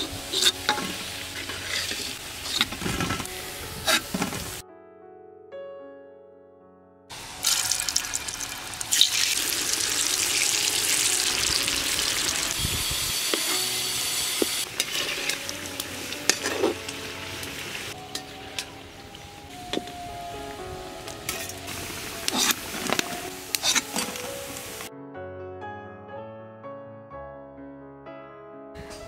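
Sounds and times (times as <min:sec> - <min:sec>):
food sizzling in hot oil: 0:00.0 - 0:04.6, 0:07.1 - 0:24.9
background music: 0:00.0 - 0:29.0.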